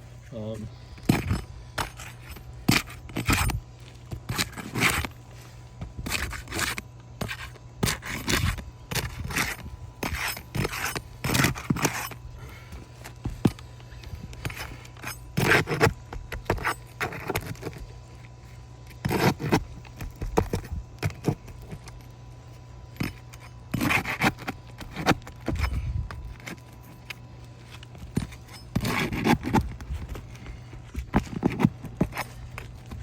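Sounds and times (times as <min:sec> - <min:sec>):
steady low hum: 0:00.0 - 0:33.0
metal bar scraping shingles: 0:01.1 - 0:05.2, 0:06.0 - 0:13.2, 0:18.9 - 0:21.9, 0:23.0 - 0:26.9, 0:27.7 - 0:33.0.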